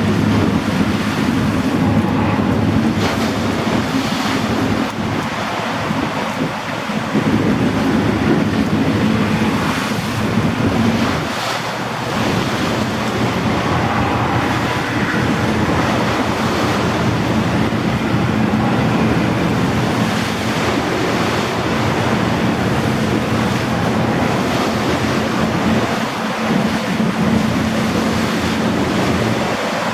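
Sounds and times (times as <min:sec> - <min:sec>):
low engine drone: 0:00.0 - 0:29.9
rushing water from wake: 0:00.0 - 0:29.9
wind buffeting microphone: 0:00.0 - 0:29.9.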